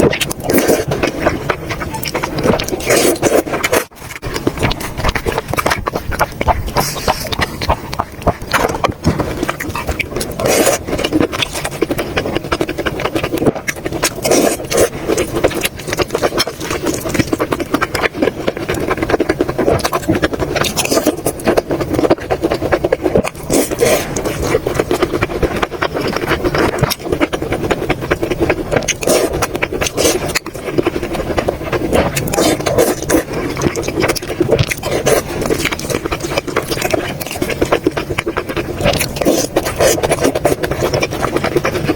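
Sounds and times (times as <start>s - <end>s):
person chewing: 0.0s - 41.9s.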